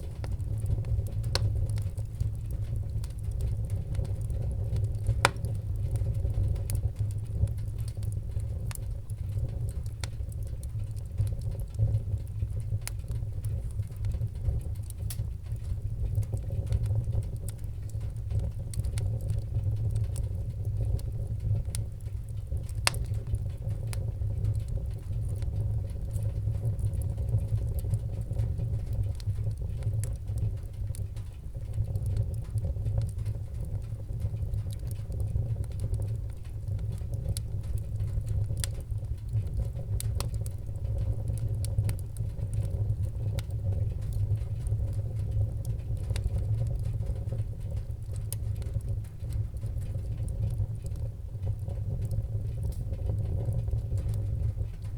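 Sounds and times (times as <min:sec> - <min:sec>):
fire crackling and popping: 0:00.0 - 0:54.9
fire flames rumbling: 0:00.0 - 0:54.9.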